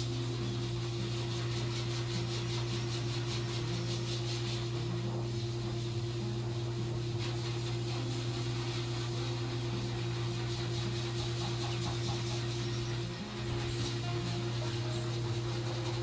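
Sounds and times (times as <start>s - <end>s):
machine hum: 9.7s - 16.0s.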